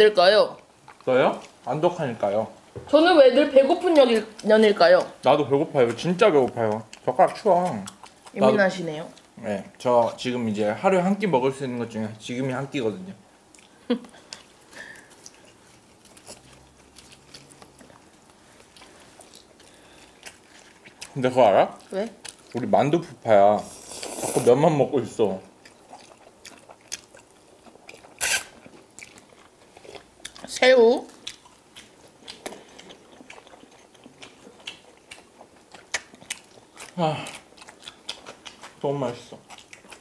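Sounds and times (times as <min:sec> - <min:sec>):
people chewing noodles: 0:00.5 - 0:02.2, 0:04.0 - 0:10.2, 0:13.4 - 0:40.0
lip smacks: 0:26.0 - 0:29.2
wet mouth clicks: 0:27.9 - 0:28.6.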